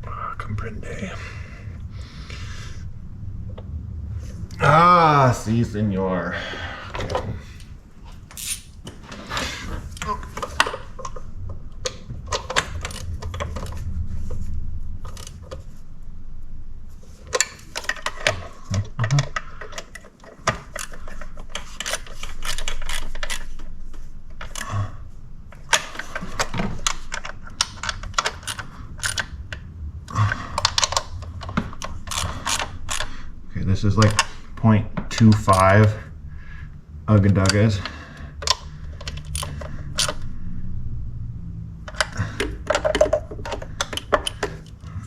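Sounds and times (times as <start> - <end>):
metal tools clinking and rattling: 41.9 - 44.8.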